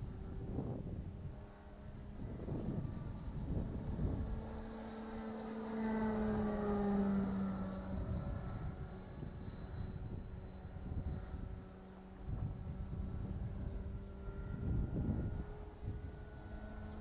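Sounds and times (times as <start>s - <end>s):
model airplane motor humming: 0.0s - 17.0s
wind rumble on microphone: 0.0s - 17.0s.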